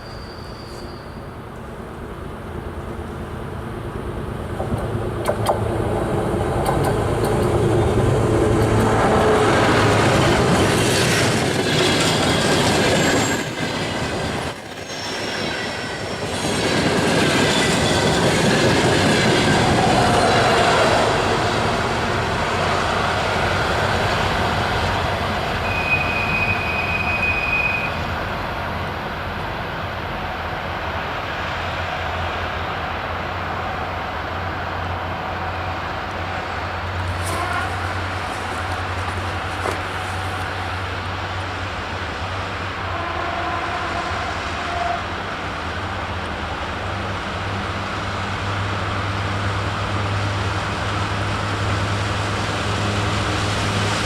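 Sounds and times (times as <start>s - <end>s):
high steady squeal: 0.0s - 1.4s
diesel locomotive passing: 0.0s - 54.0s
train wheels clattering on rails: 4.5s - 22.2s, 36.0s - 41.6s.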